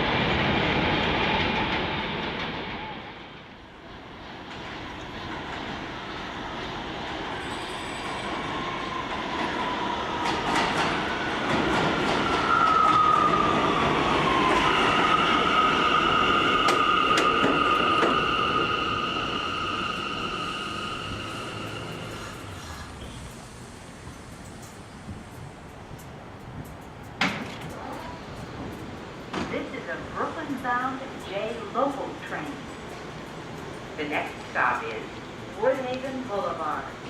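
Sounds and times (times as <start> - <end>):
subway train rumbling on rails: 0.0 - 37.0
high wheel squeal: 7.4 - 8.4, 14.3 - 23.3
sharp clicks from rails: 8.0 - 18.7, 21.5 - 37.0.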